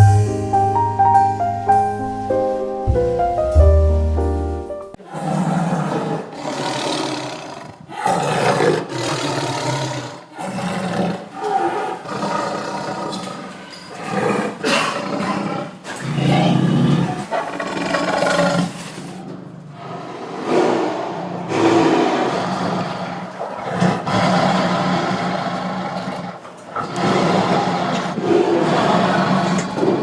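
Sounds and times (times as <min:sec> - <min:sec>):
large animal roaring: 0:19.7 - 0:30.0.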